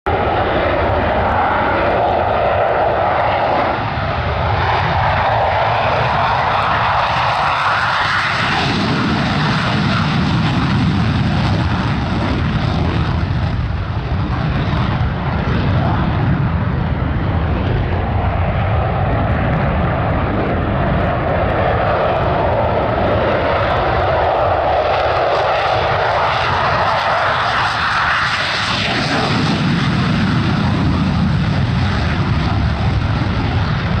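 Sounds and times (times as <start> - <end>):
jet engine roaring: 0.1 - 34.0.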